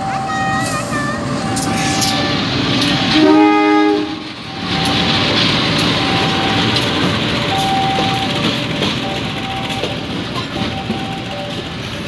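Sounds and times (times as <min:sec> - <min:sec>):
train carriages clattering on rails: 0:00.0 - 0:12.0
locomotive horn: 0:01.5 - 0:04.4.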